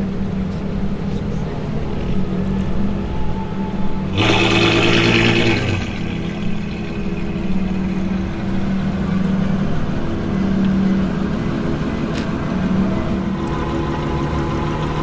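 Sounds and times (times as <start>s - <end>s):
car engine at low revs: 3.9s - 15.0s.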